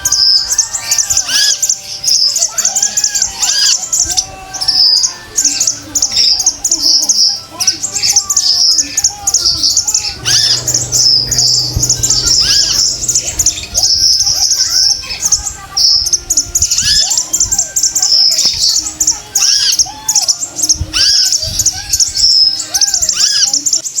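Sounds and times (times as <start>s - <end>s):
bird chirping and twittering: 0.0s - 24.0s
short arched bird notes: 9.1s - 16.3s.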